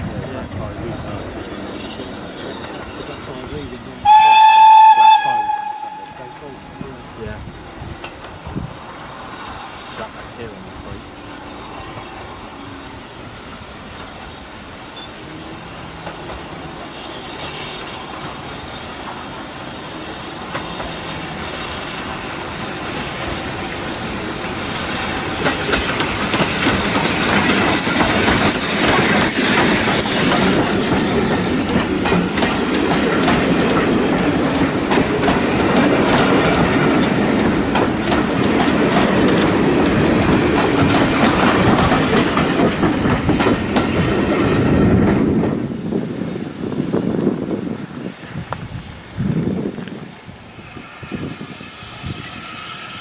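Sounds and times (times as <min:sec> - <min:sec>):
steam train passing: 0:00.0 - 0:53.0
wheels clattering over rail joints: 0:07.9 - 0:45.7.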